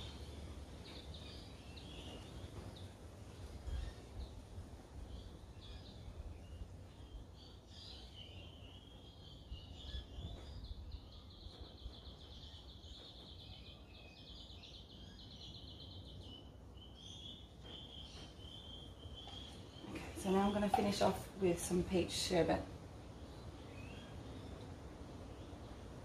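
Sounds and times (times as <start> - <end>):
bird singing trills: 0.0 - 3.0, 5.1 - 21.3, 23.2 - 24.7.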